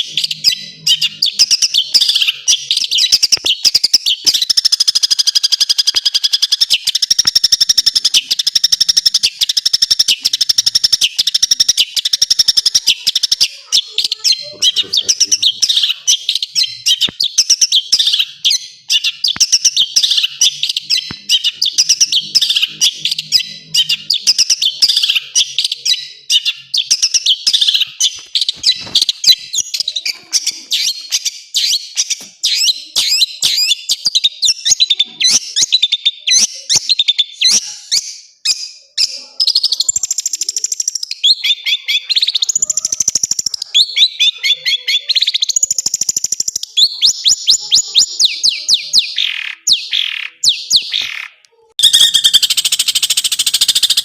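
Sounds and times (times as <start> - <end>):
shrike singing: 0.0 - 35.6.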